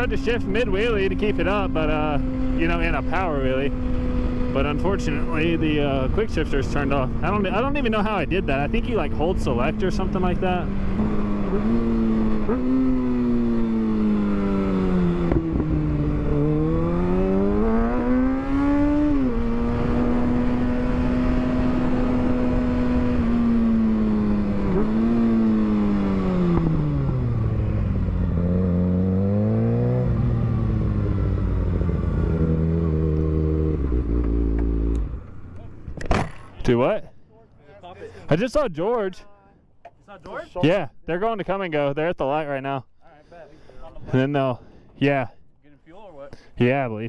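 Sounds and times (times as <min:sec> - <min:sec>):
motorcycle engine revving: 0:00.0 - 0:36.7.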